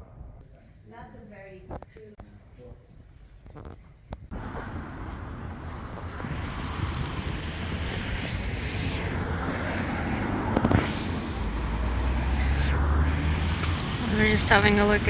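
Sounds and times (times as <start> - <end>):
low engine rumble: 4.3 - 15.0
vehicles passing: 4.3 - 15.0.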